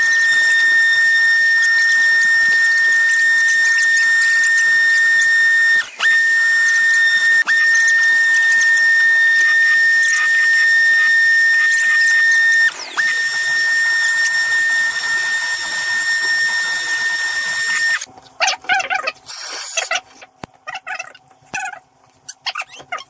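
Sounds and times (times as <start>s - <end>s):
power tool motor whine: 0.0s - 18.1s.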